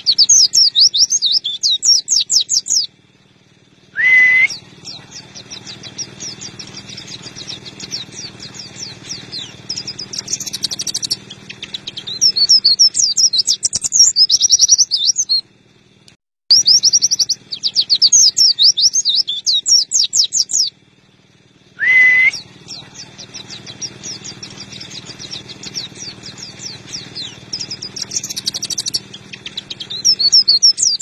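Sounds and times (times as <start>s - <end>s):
bird singing rapid chirps: 0.0s - 31.0s
brief rising tone: 21.8s - 22.9s.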